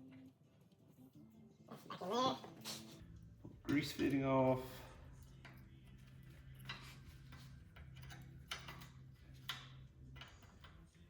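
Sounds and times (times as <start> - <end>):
hand tools tapping on metal: 5.4 - 11.0.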